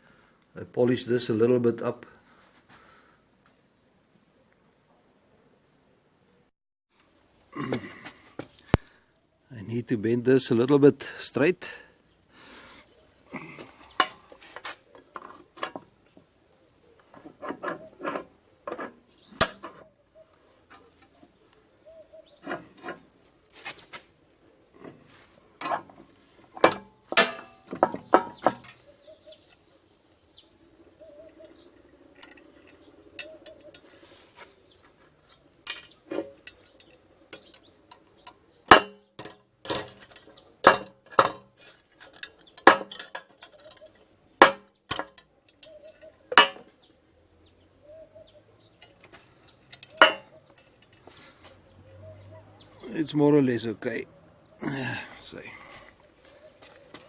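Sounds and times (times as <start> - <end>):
metal clinks and knocks: 17.1 - 19.9, 22.4 - 23.1, 24.8 - 29.7, 31.3 - 34.0, 35.3 - 46.9, 48.6 - 51.6.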